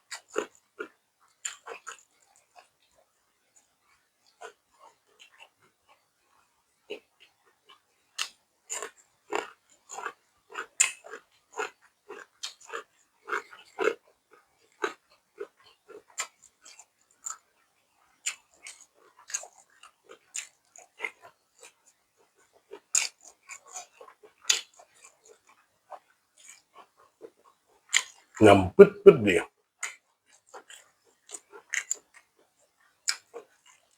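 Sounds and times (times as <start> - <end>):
person chewing food: 26.4 - 26.6.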